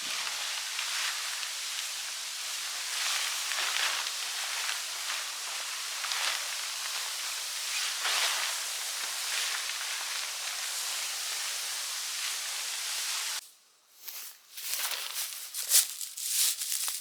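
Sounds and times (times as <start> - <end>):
steady outdoor hiss: 0.0 - 17.0.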